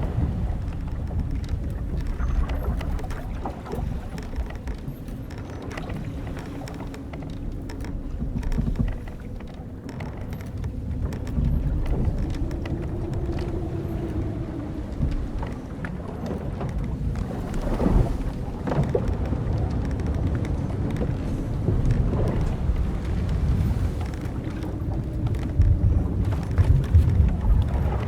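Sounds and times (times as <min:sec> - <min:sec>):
sea and wind rumbling: 0:00.0 - 0:28.0
wooden ship creaking: 0:00.0 - 0:28.0
small clicks: 0:00.6 - 0:18.0.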